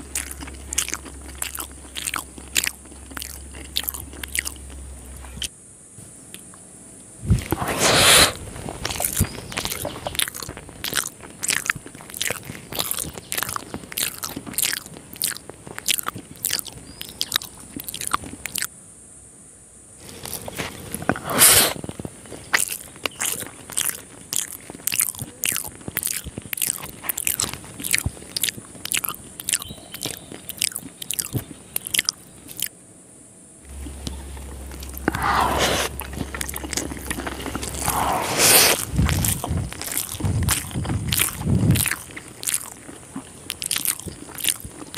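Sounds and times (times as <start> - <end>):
person chewing with wet smacks: 0.0 - 5.5, 7.3 - 18.7, 20.0 - 32.7, 33.7 - 44.9.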